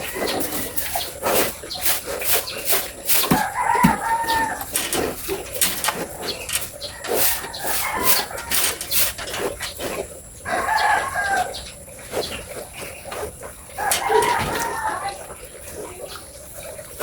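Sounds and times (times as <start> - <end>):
sharp clicks and knocks: 2.7 - 9.8, 13.8 - 14.7
rooster crowing: 3.3 - 5.1, 6.8 - 9.2, 10.4 - 11.7, 13.7 - 15.2.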